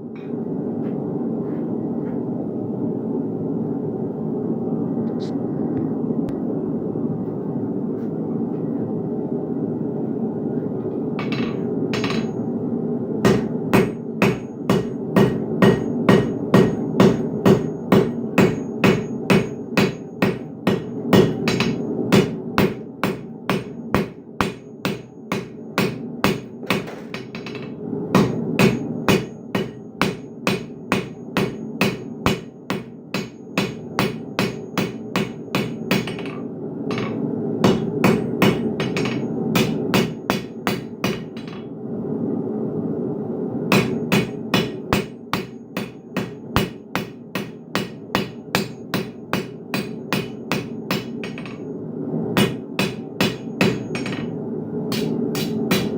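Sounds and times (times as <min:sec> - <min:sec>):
hammer striking steel on anvil: 0:11.2 - 0:12.4, 0:13.3 - 0:41.6, 0:43.7 - 0:51.6, 0:52.4 - 0:54.3, 0:54.9 - 0:55.9.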